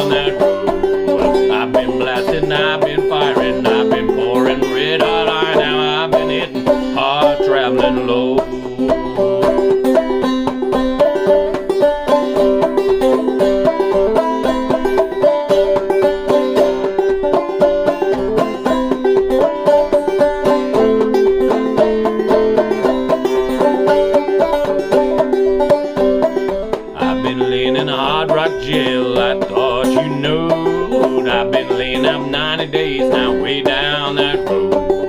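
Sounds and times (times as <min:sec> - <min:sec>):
banjo plucked notes and chords: 0:00.0 - 0:35.0.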